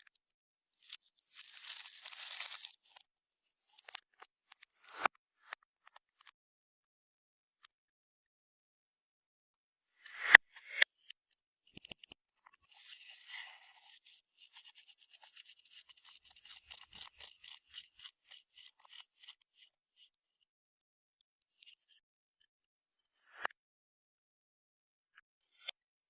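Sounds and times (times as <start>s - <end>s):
slime scraping and squishing: 0.8s - 3.0s, 12.7s - 19.5s.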